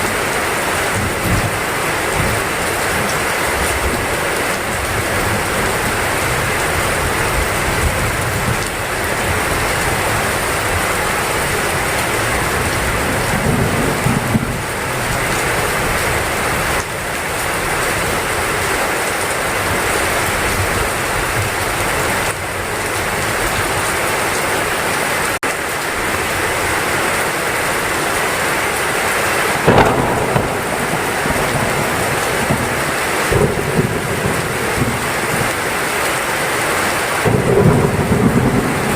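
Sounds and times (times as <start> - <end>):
heavy rain pouring: 0.0 - 38.9
low rumble of thunder: 4.8 - 16.8, 29.5 - 35.7, 37.2 - 38.9
loud thunder crack: 12.5 - 15.1, 29.5 - 35.6, 37.2 - 38.9.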